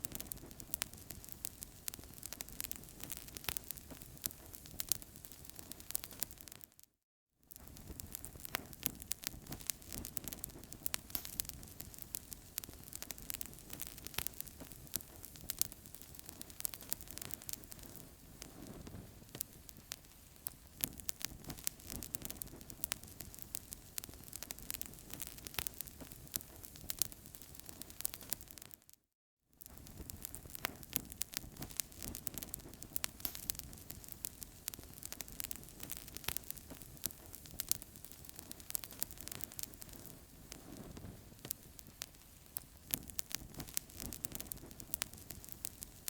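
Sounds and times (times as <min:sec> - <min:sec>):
wood fire popping and snapping: 0:00.0 - 0:06.7, 0:07.5 - 0:28.9, 0:29.6 - 0:46.0
low rushing of flames: 0:29.8 - 0:46.0.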